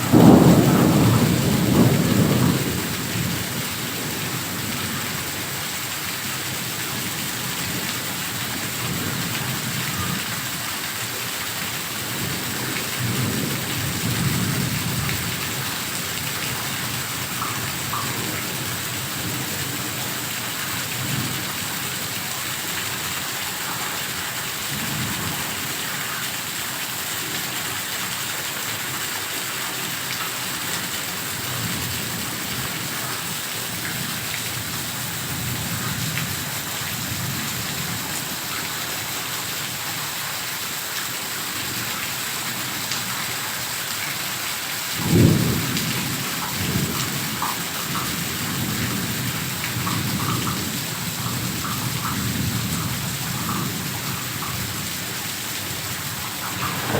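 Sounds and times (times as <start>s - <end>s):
loud thunderclap: 0.0s - 4.8s, 56.2s - 56.9s
thunder rumbling: 0.0s - 5.0s, 55.8s - 56.9s
heavy rain pouring: 0.0s - 56.9s.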